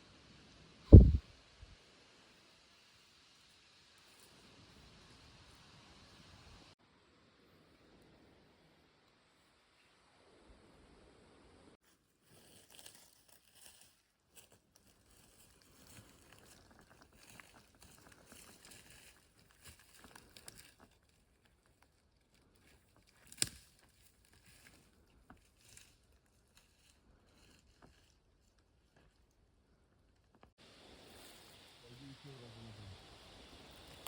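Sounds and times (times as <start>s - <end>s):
footsteps in forest litter: 11.8s - 28.6s.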